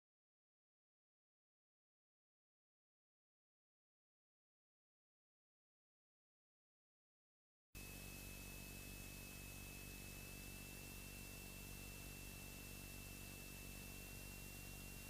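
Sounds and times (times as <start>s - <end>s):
faint hiss and low hum: 7.8s - 15.0s
high-pitched whine: 7.8s - 15.0s.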